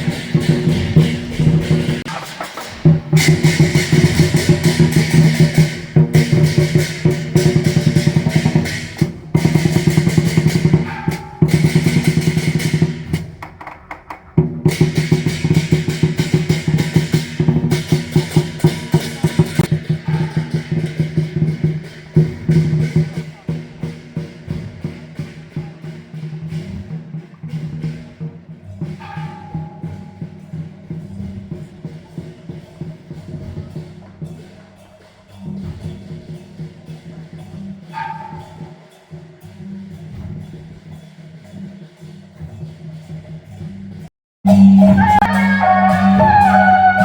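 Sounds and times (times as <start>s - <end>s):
drums beaten in fast rolls: 0.0s - 47.0s.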